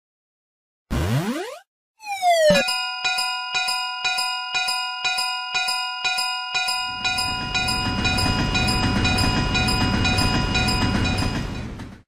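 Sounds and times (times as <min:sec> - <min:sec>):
level crossing bell ringing: 0:02.3 - 0:11.5
passing train rumble: 0:07.0 - 0:12.0.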